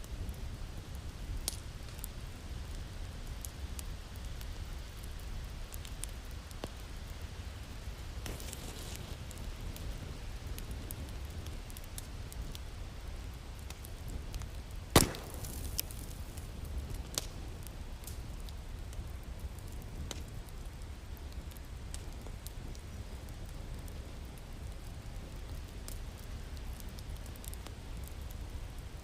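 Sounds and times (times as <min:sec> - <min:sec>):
wood fire crackling: 0:00.0 - 0:29.0
loud fire pop: 0:14.9 - 0:16.4.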